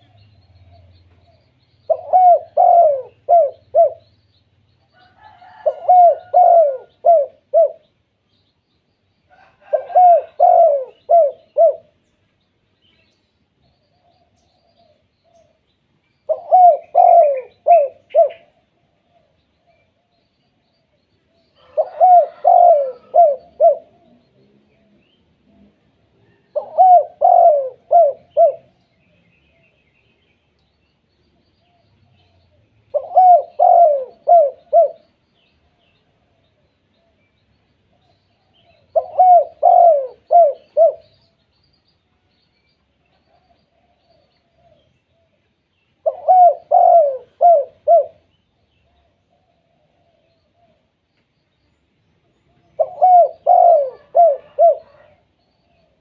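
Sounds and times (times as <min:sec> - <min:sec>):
dove cooing: 0:00.0 - 0:04.1, 0:04.9 - 0:07.9, 0:09.3 - 0:12.0, 0:16.3 - 0:19.9, 0:21.6 - 0:28.8, 0:31.6 - 0:35.1, 0:38.0 - 0:41.1, 0:46.0 - 0:50.8, 0:52.8 - 0:56.0.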